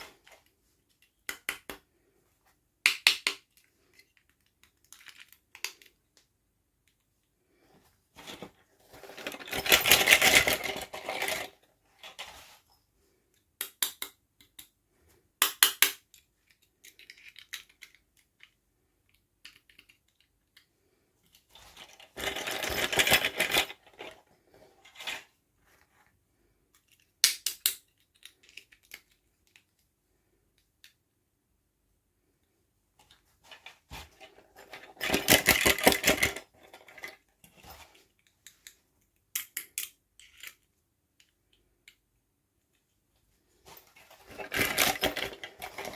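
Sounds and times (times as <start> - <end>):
rustling and clattering: 7.5 - 13.2, 20.8 - 26.6, 33.0 - 38.6, 42.7 - 45.9.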